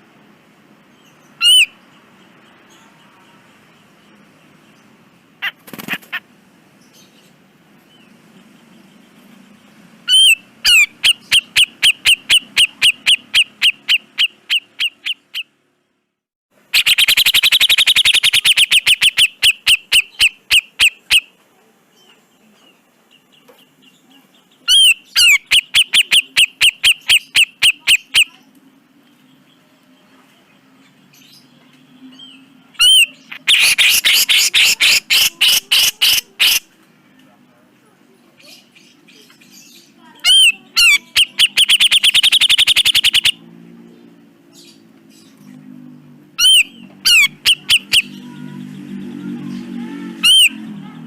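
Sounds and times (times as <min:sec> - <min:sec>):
bulbul rattling calls: 0:05.4 - 0:06.2, 0:10.1 - 0:15.5, 0:16.8 - 0:21.3, 0:24.7 - 0:28.3, 0:32.8 - 0:36.6, 0:39.5 - 0:43.4, 0:46.4 - 0:48.2.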